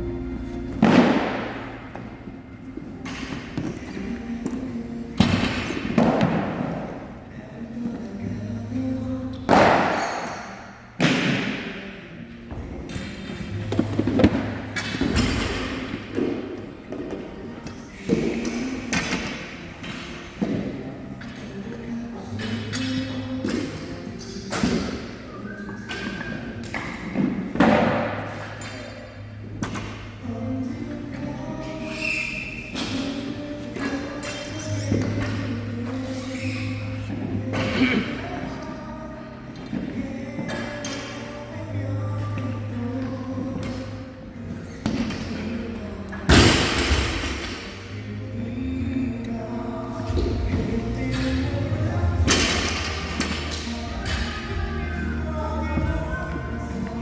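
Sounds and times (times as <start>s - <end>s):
background music: 0.0s - 57.0s.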